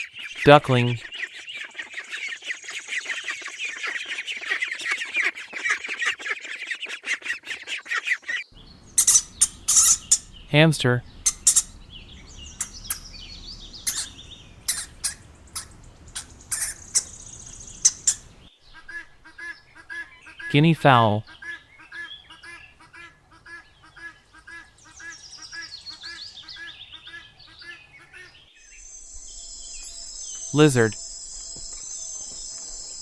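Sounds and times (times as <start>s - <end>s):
ducklings peeping: 8.6s - 18.5s
hamster squeaks: 8.9s - 18.4s
hamster clicks: 12.5s - 13.2s.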